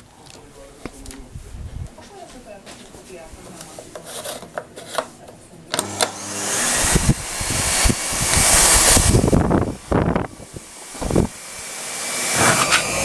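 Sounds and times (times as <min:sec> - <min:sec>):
vacuum cleaner running: 0:05.7 - 0:13.0.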